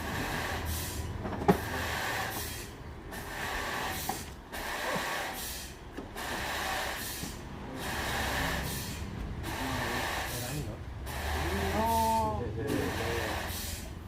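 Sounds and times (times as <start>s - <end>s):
sawmill machinery cutting log: 1.5s - 14.0s.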